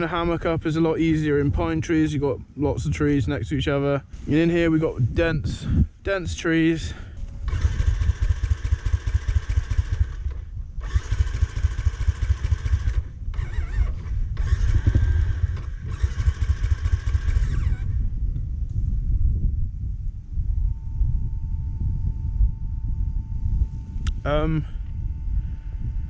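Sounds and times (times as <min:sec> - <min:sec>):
dirt bike engine revving: 0:07.4 - 0:18.0.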